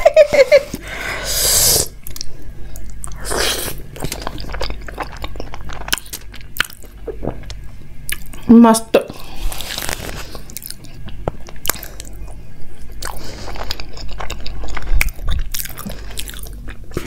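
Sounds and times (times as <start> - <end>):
wet chewing and mouth clicks: 3.9 - 8.4, 9.5 - 17.0.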